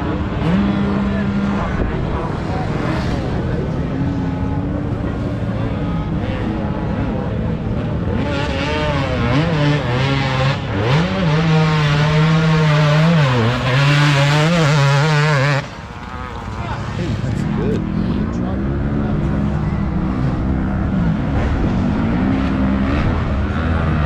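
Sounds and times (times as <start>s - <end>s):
dirt bike revving hard: 0.0s - 18.0s
dirt bike engines running: 0.0s - 24.0s.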